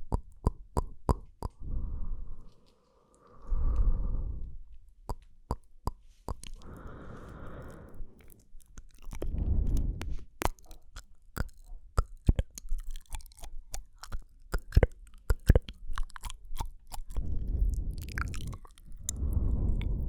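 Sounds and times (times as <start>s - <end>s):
wet tongue and lip clicks: 0.0s - 1.6s, 4.9s - 20.0s
low rumbling noise: 1.6s - 2.6s, 3.3s - 4.7s, 9.2s - 10.3s, 17.2s - 20.0s.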